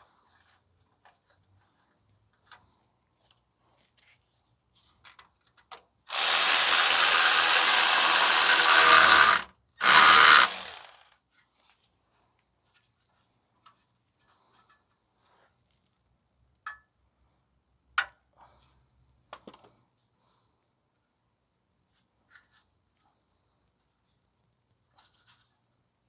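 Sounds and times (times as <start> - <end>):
cordless power tool running: 6.1 - 11.1.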